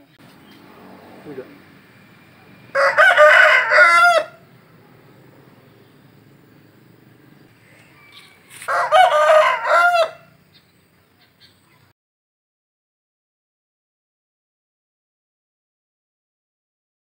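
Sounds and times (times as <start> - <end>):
rooster crowing: 2.0 - 4.6, 7.4 - 10.4.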